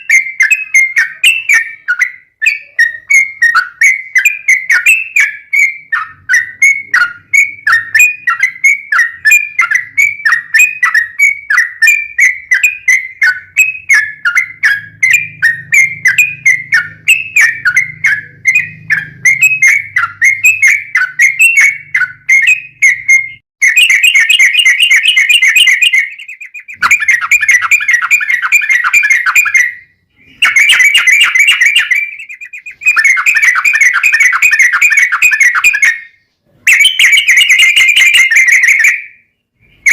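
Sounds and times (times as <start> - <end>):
bulbul whistled notes: 0.0 - 39.9.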